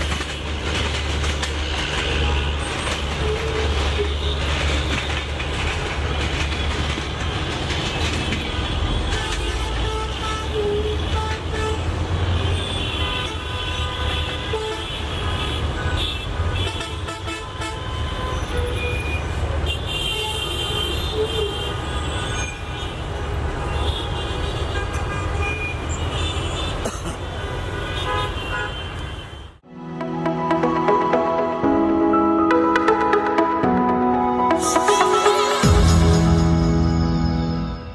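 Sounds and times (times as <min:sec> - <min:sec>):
railway and traffic rumble: 0:00.0 - 0:37.9
music: 0:29.7 - 0:37.9.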